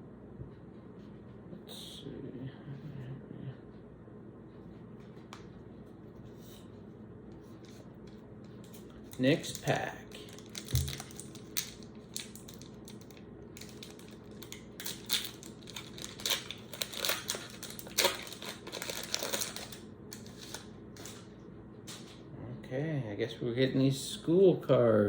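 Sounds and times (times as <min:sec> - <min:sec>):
wrapper being torn and crinkled: 0:09.1 - 0:21.2.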